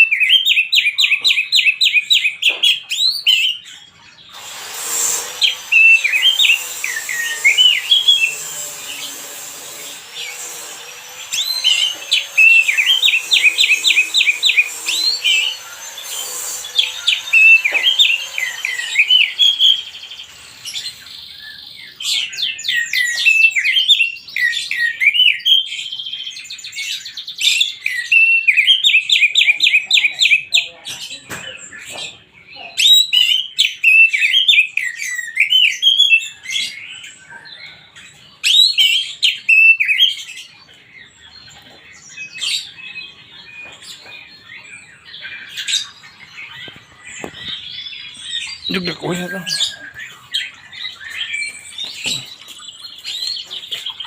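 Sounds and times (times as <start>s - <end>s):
steady hiss: 4.4s - 10.8s
songbird trilling and warbling: 5.0s - 25.4s, 27.7s - 54.0s.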